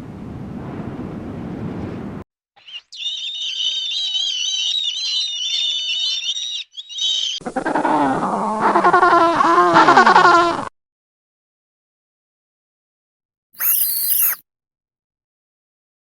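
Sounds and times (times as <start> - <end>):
high wavering animal calls: 2.6 - 7.8, 13.6 - 14.4.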